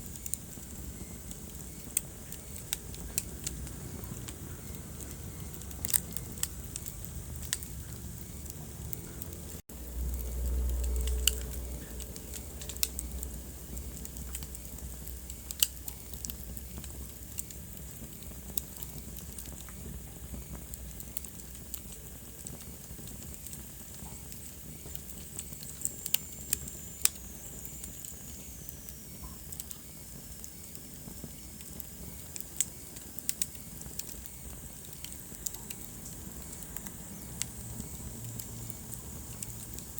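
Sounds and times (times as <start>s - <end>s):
wood fire crackling: 0.0s - 39.9s
low rumble: 2.8s - 15.5s.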